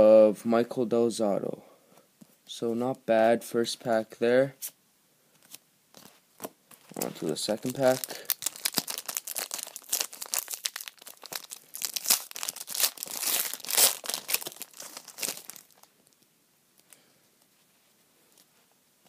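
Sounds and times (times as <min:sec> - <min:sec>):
foil pack tearing and crinkling: 0:06.9 - 0:15.9.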